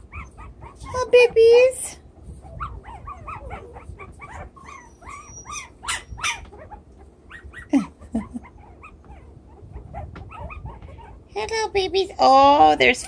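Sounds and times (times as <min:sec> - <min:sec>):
puppy yip: 0:00.0 - 0:01.1, 0:02.4 - 0:11.2
puppies squeaking and whimpering: 0:00.0 - 0:11.4.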